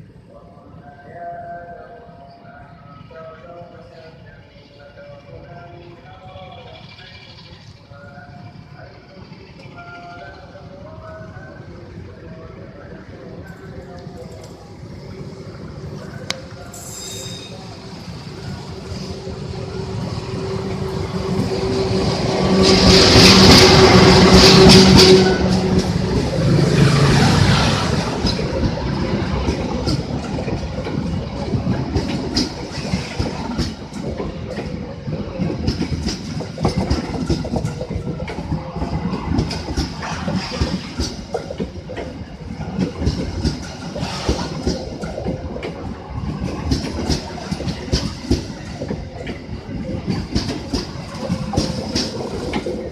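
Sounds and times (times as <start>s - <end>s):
train passing with hum: 0.0s - 52.9s
wheels clacking over rail joints: 20.0s - 52.9s.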